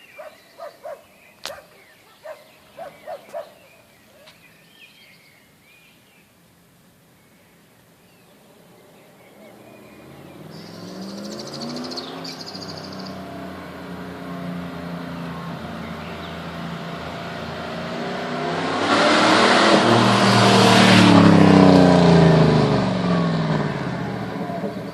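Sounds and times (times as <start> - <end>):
car engine approaching: 8.1 - 24.9.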